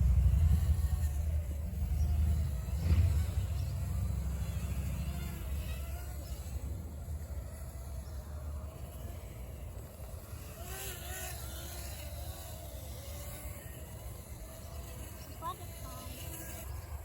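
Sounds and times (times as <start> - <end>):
steady low rumble: 0.0 - 4.3
electric motor and propeller whining: 0.0 - 17.0.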